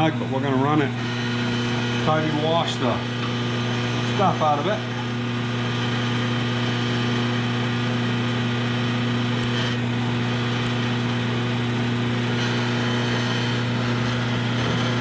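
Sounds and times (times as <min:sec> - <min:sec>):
electric motor hum: 0:00.0 - 0:15.0.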